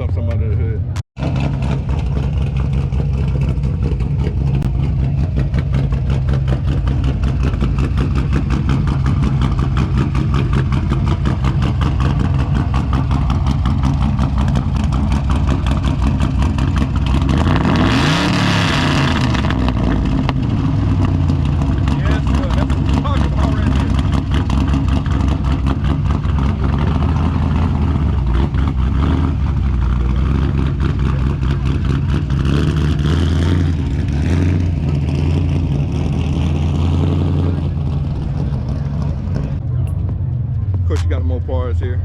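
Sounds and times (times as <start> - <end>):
car engine idling and revving: 0.0 - 42.0.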